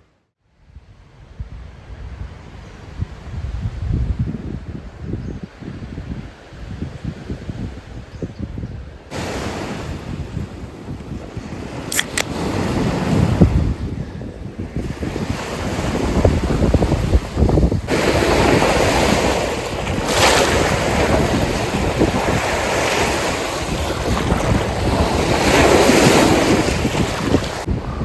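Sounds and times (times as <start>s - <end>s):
wind buffeting microphone: 0.9s - 28.0s
lake waves washing onto shore: 9.1s - 27.8s.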